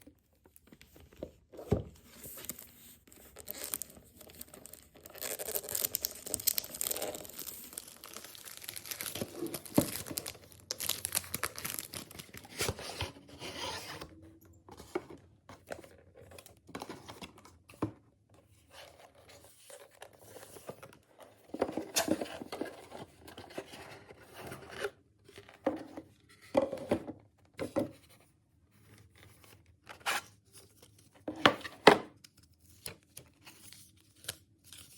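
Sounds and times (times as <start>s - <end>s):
wrapping tearing and crinkling: 2.2s - 13.2s.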